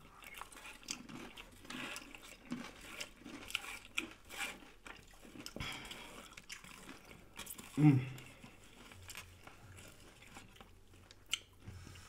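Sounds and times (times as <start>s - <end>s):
chewing and crunching: 0.0s - 12.0s.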